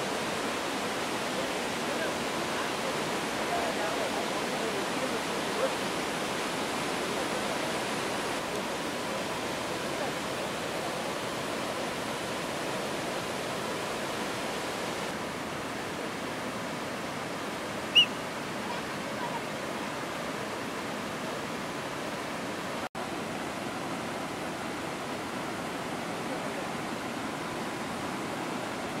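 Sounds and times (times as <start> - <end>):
waterfall and river rapids roaring: 0.0 - 29.0
short high chirp: 17.9 - 18.1.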